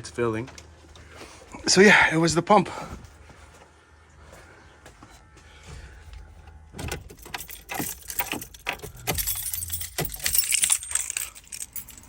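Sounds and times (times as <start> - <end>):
metal jangling and clinking: 6.8 - 12.0.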